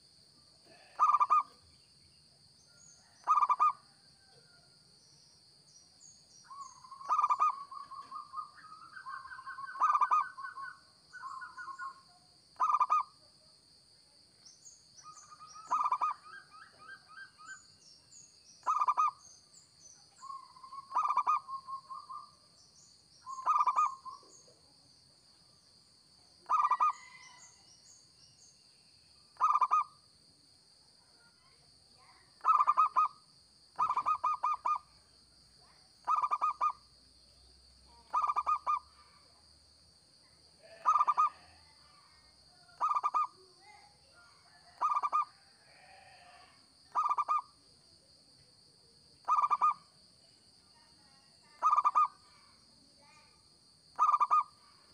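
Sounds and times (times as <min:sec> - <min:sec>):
dove cooing: 0:00.7 - 0:01.5, 0:03.2 - 0:03.8, 0:07.0 - 0:10.7, 0:12.6 - 0:13.0, 0:15.6 - 0:17.2, 0:20.8 - 0:21.5, 0:23.3 - 0:24.1, 0:26.5 - 0:27.3, 0:29.4 - 0:29.9, 0:33.8 - 0:34.8, 0:36.1 - 0:36.7, 0:38.1 - 0:38.8, 0:40.7 - 0:41.5, 0:44.7 - 0:45.2, 0:51.6 - 0:52.1, 0:54.0 - 0:54.5
small birds chirping: 0:05.1 - 0:13.1, 0:14.4 - 0:24.7, 0:31.2 - 0:33.2, 0:33.8 - 0:34.9, 0:35.6 - 0:39.4, 0:40.6 - 0:41.5, 0:42.8 - 0:46.2, 0:49.2 - 0:49.8, 0:51.0 - 0:53.4, 0:54.0 - 0:54.6.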